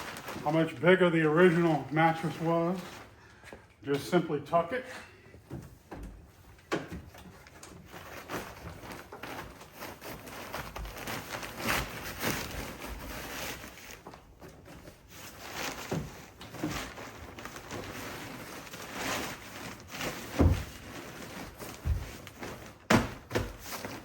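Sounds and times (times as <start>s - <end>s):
foam mattress rustling: 7.8s - 24.0s.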